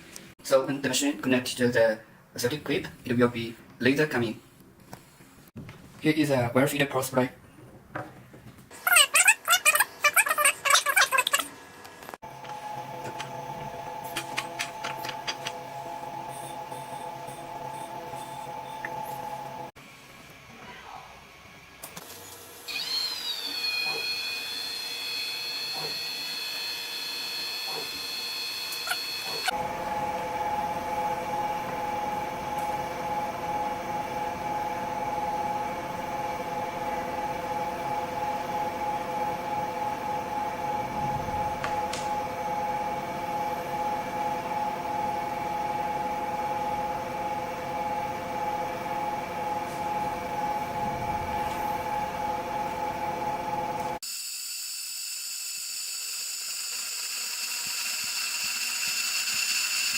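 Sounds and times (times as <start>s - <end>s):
laser welding machine humming: 12.3s - 19.7s, 22.7s - 39.0s, 46.6s - 59.9s
thin high-pitched steady tone: 16.2s - 19.3s.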